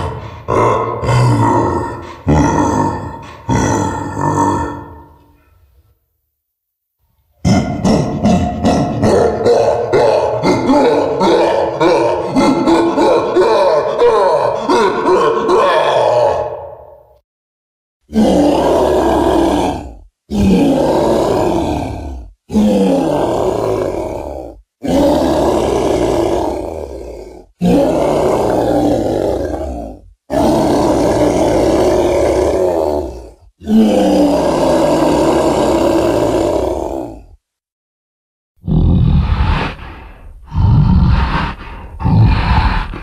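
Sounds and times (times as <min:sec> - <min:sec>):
deep loud roars: 0:18.1 - 0:37.2.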